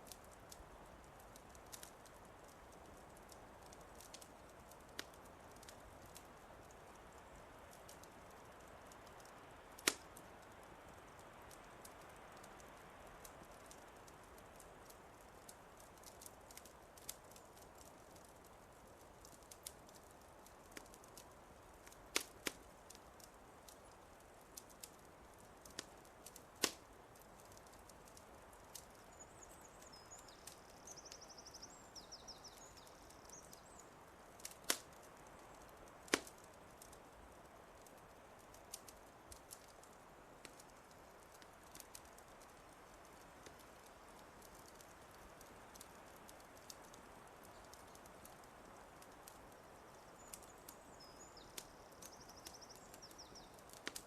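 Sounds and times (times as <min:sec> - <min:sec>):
wood fire crackling: 0:00.0 - 0:54.0
small bird singing with trill: 0:29.1 - 0:33.9.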